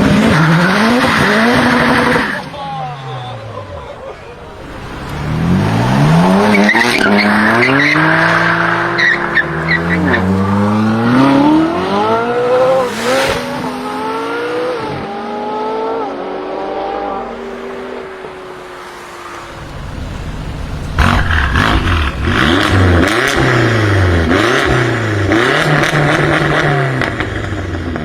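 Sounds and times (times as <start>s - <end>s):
exhaust crackles: 3.3s - 14.4s, 18.3s - 28.0s
car engine accelerating hard: 4.4s - 28.0s.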